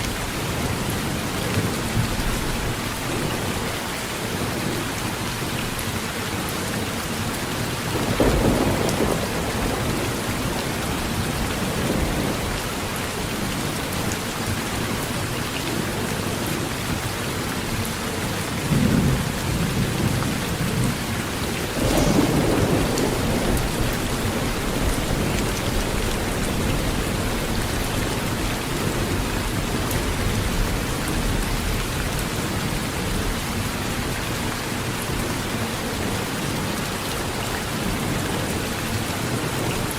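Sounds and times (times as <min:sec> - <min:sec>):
heavy rain on a metal roof: 0:00.0 - 0:39.9
thunder rumbling: 0:07.8 - 0:13.5, 0:18.6 - 0:33.6.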